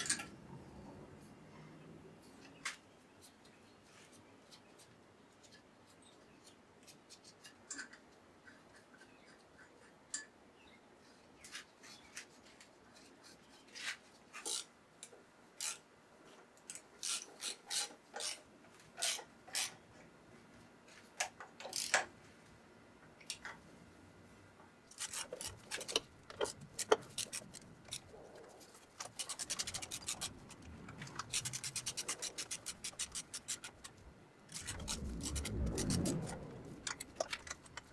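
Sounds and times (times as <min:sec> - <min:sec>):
metal parts and tools clicking: 0:21.2 - 0:22.1, 0:24.9 - 0:37.9.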